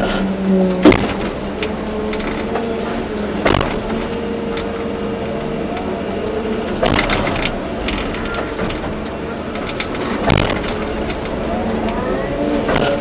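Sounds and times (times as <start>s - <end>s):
excavator engine and hydraulics: 0.0s - 13.0s
sharp knocks: 0.8s - 2.6s, 3.4s - 4.7s, 6.7s - 12.0s.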